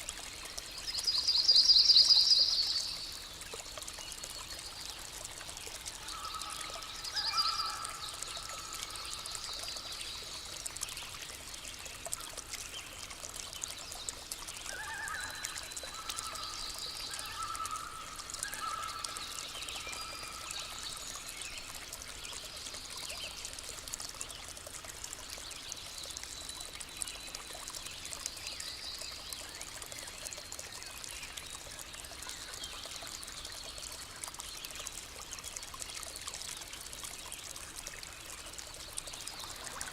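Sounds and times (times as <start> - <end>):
water trickling in stream: 0.0 - 39.9.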